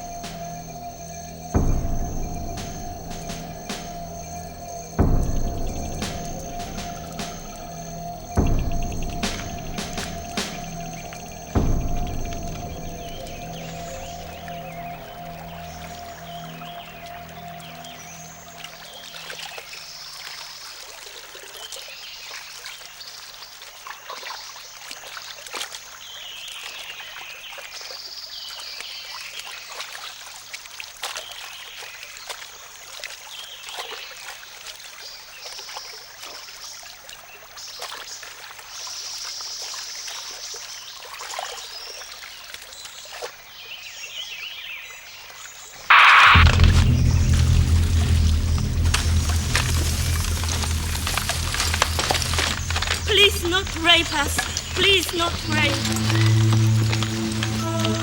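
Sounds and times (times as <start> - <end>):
water trickling: 46.7 - 58.0.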